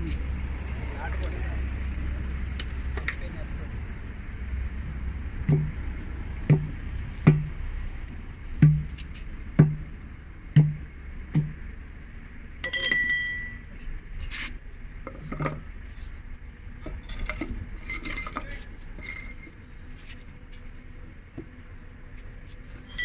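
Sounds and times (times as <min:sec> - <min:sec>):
short ringing tone: 0:12.6 - 0:13.6
light metallic clinks: 0:12.6 - 0:13.8.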